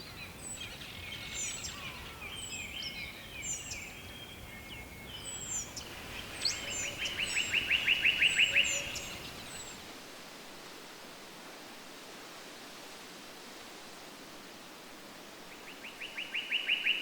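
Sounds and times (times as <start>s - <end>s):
songbirds chirping: 0.0s - 10.0s, 15.1s - 17.0s
background hiss: 0.0s - 17.0s.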